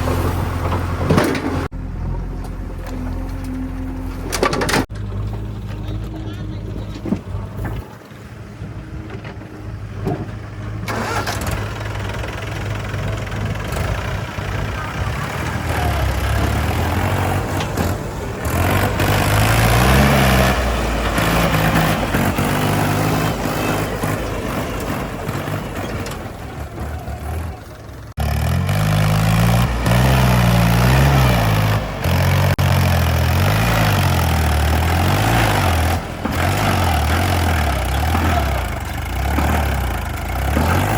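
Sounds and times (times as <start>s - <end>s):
heavy diesel engine revving: 9.9s - 40.9s.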